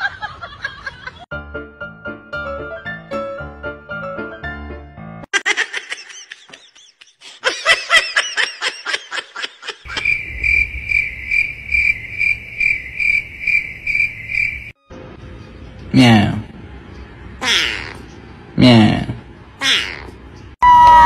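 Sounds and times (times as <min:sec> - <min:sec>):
bursts of laughter: 0:05.3 - 0:10.1
cricket chirping: 0:09.9 - 0:14.8.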